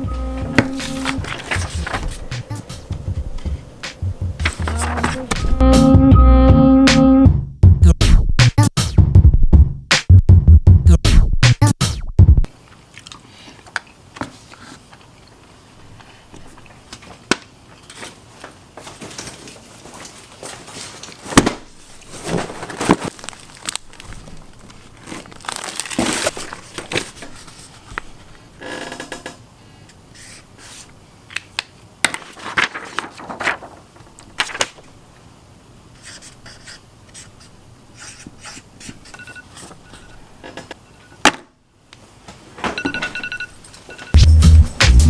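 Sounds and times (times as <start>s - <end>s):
short high tones: 0.0s - 1.3s
scraping and rustling: 0.6s - 2.8s, 4.3s - 5.6s, 17.8s - 28.8s.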